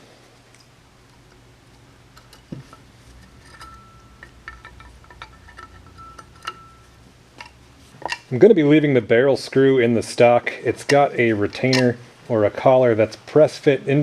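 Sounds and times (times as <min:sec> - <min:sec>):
thin high ringing tone: 0:03.2 - 0:07.1
metallic taps and clinks of tools: 0:03.4 - 0:08.3.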